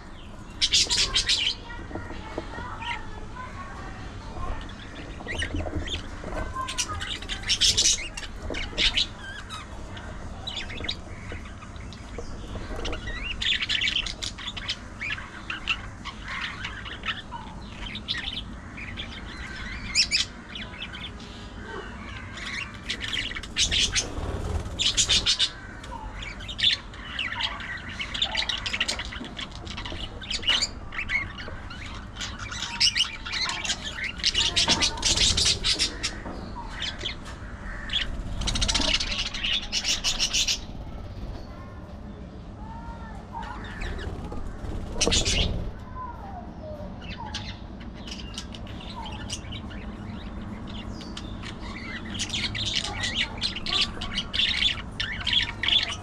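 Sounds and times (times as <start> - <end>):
budgerigars chattering: 0.0 - 41.6, 43.4 - 45.8, 47.0 - 56.0.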